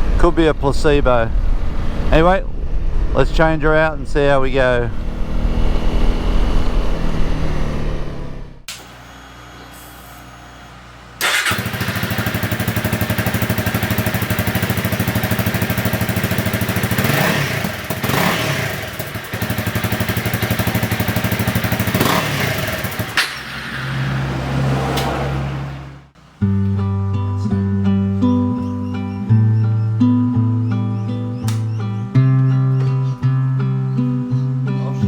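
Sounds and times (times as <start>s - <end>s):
motorcycle engine idling and revving: 4.5s - 8.7s, 11.2s - 26.6s.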